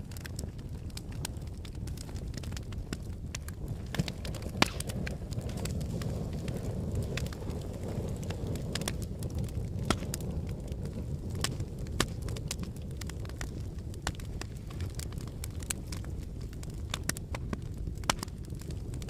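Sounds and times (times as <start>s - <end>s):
low volcanic rumble: 0.0s - 19.0s
sharp cracks and pops: 0.0s - 19.0s.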